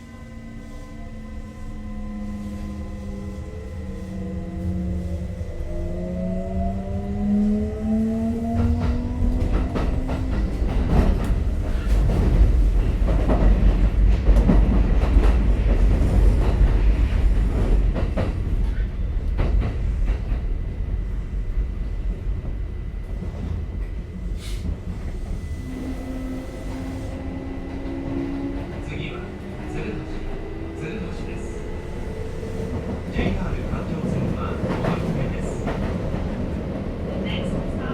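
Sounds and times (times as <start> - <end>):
train running rumble: 0.0 - 37.9.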